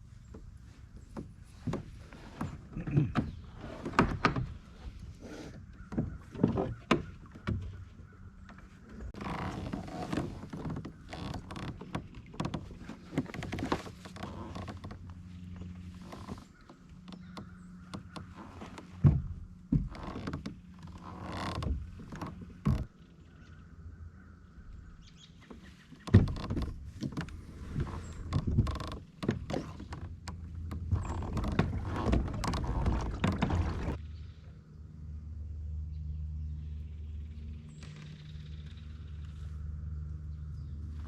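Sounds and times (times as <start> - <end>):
paddle splashing in water: 0.4 - 22.9, 25.3 - 34.0.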